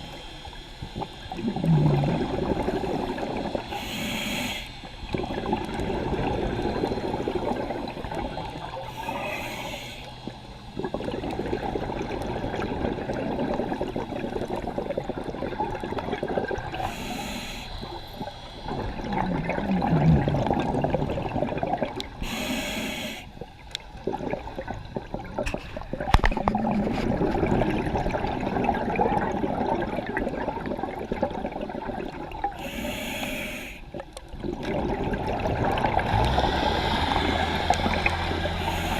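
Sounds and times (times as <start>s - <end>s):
burbling exhaled bubbles: 0.9s - 4.1s, 5.1s - 9.3s, 10.3s - 17.1s, 18.2s - 32.6s, 33.9s - 38.9s
regulator hissing inhalations: 3.6s - 5.0s, 8.8s - 10.4s, 16.8s - 18.6s, 22.2s - 23.3s, 32.6s - 33.9s, 38.5s - 38.9s.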